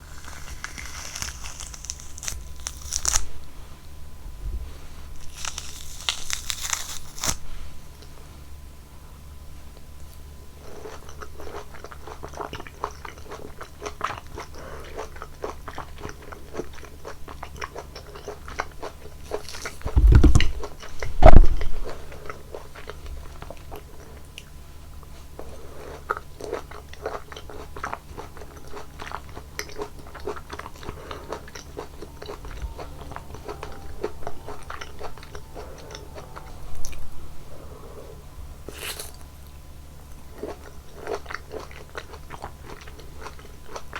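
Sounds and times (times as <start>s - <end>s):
chewing juicy fruit: 0.0s - 4.1s, 5.1s - 8.6s, 9.6s - 43.9s
low thumps: 19.8s - 21.9s.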